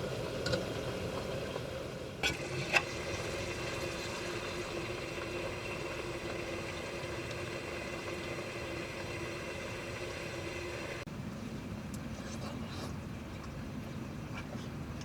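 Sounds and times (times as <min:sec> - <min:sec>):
pot simmering and bubbling: 0:00.0 - 0:11.1.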